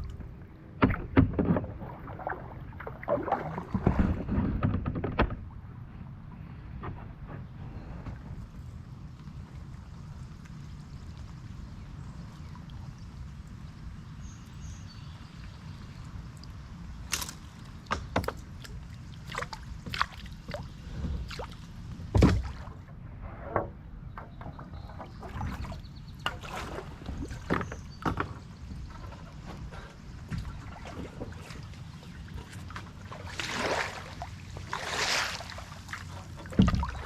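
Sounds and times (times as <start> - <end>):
paddle strokes and splashes: 0.0 - 5.7, 15.5 - 23.7, 24.4 - 37.0
knocks against kayak: 22.1 - 22.6, 36.5 - 37.0.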